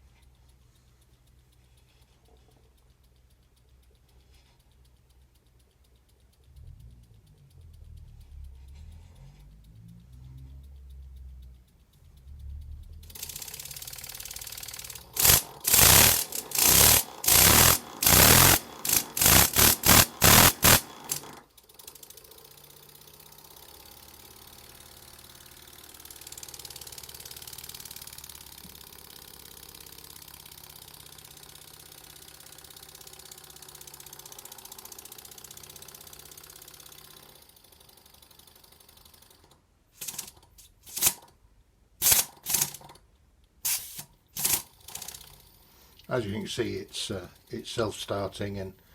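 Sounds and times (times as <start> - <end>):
steam engine exhaust chuffs: 0.0 - 39.4, 40.0 - 41.3, 42.0 - 42.9, 43.6 - 48.9
steam engine hissing: 14.9 - 21.4, 40.0 - 41.2, 42.0 - 42.8, 43.6 - 45.1.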